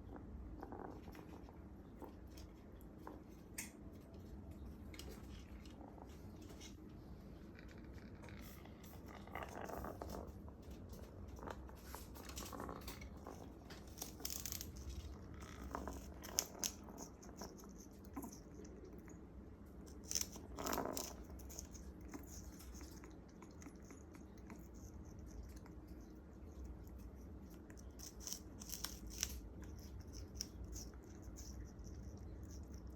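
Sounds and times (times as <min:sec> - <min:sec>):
parrot biting sugarcane: 0:27.6 - 0:31.5.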